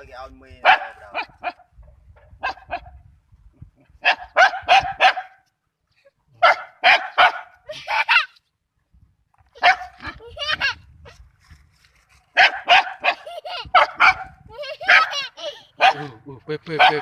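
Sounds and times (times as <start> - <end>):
dog barking: 0.6 - 1.6, 2.4 - 2.9, 4.0 - 5.4, 6.4 - 7.6, 9.6 - 10.1, 12.4 - 14.3, 14.9 - 15.2, 15.8 - 16.2, 16.8 - 17.0.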